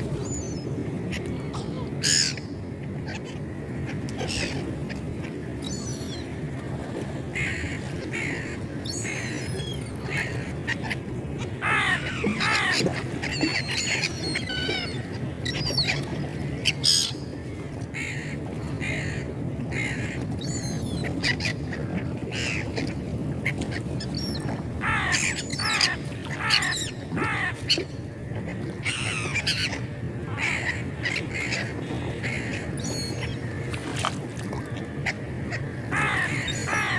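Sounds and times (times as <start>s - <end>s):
seagulls squawking: 7.3s - 17.4s, 23.4s - 33.6s, 35.0s - 36.9s.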